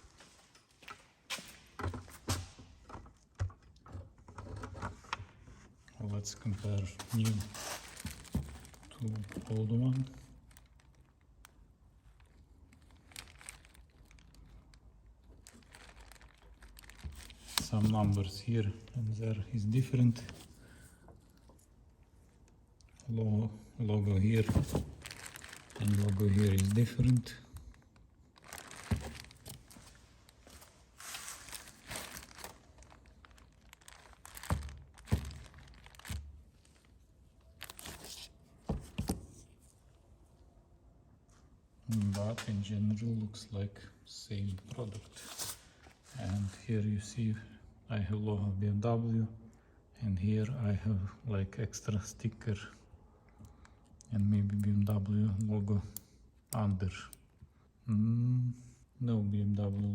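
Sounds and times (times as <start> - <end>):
plastic wrapping crinkling: 6.4 - 23.1, 24.0 - 39.6, 44.6 - 46.6
faint rustling: 24.1 - 39.8.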